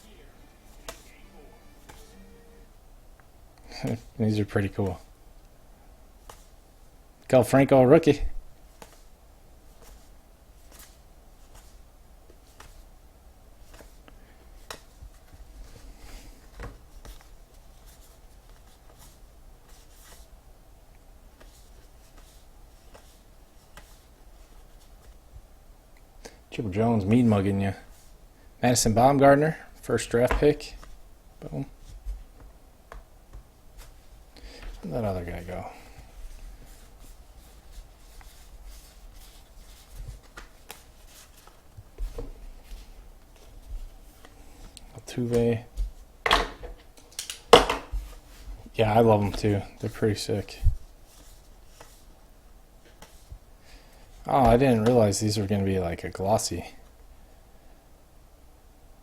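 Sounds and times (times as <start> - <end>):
cards rustling and sliding: 0.6 - 2.2, 9.8 - 12.8, 13.6 - 14.0, 36.3 - 44.8
cards clicking and swishing: 0.7 - 1.2, 8.8 - 9.1, 37.5 - 43.5.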